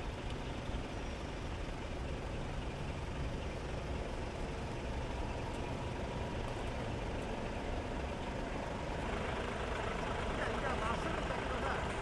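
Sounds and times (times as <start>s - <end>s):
heavy truck engines idling: 0.0s - 12.0s.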